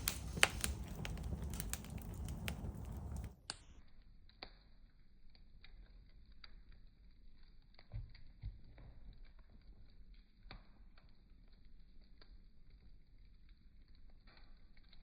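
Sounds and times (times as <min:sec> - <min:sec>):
campfire crackling and popping: 0:00.0 - 0:03.6.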